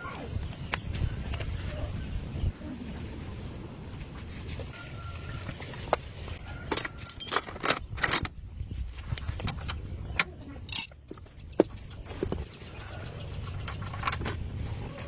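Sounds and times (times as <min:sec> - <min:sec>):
metallic clinks and jangles: 0:06.9 - 0:08.3, 0:10.6 - 0:11.0.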